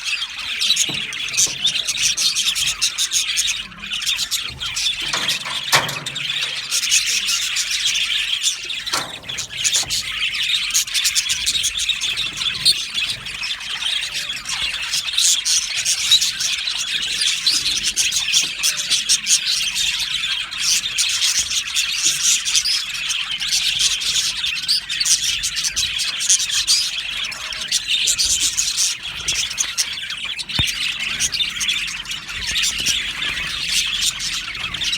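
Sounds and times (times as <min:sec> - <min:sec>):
budgerigars chirping and warbling: 0:00.0 - 0:34.9.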